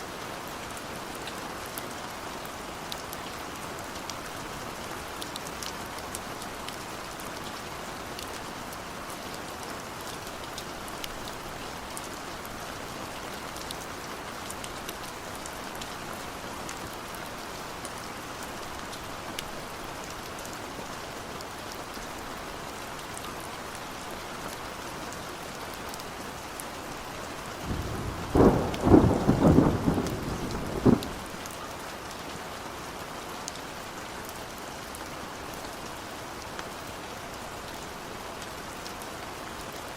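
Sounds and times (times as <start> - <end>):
steady rain: 0.0 - 39.9
thunder rolling: 27.7 - 31.3.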